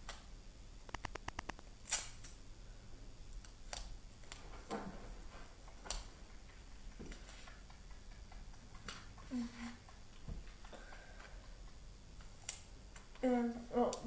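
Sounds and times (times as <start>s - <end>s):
small clicks: 0.9s - 2.4s.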